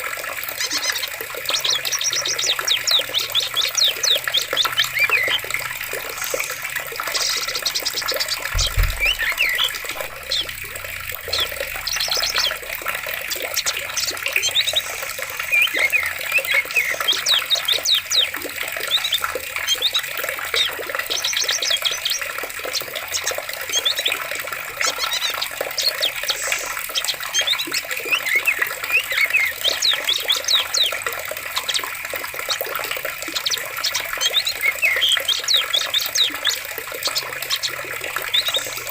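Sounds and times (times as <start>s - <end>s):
forest birds chirping: 0.0s - 38.9s
running water: 0.0s - 38.9s
low thump: 8.5s - 10.8s.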